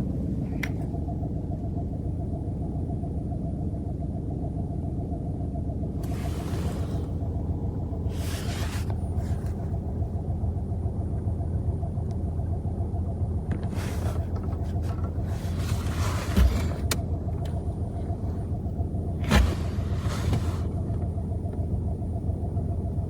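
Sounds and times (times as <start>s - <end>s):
car engine idling: 0.0s - 23.0s
dull thump: 13.7s - 17.0s, 19.2s - 20.7s.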